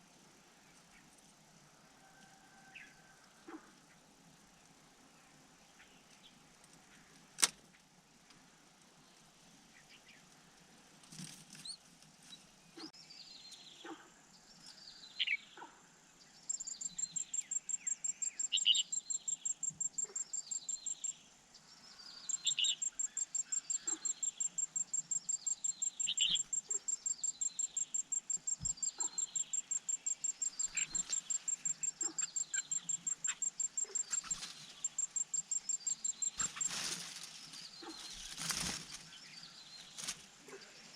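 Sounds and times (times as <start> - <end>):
bird chirping: 12.7 - 40.9.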